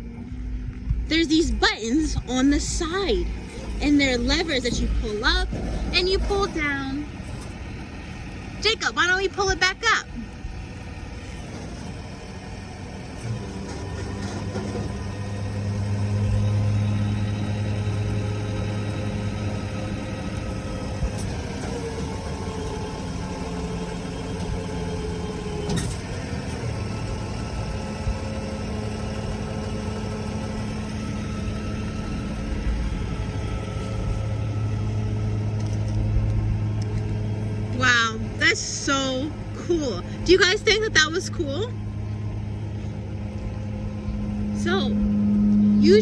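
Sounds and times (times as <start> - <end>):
hydraulics pulling bed: 0.0 - 46.0
truck engine running: 0.0 - 46.0
whine sliding down in pitch: 43.0 - 46.0.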